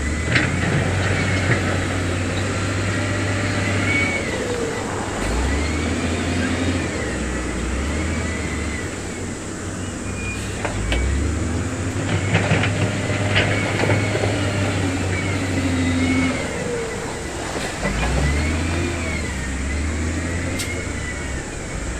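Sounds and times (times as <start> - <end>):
diesel machinery running: 0.0 - 21.9.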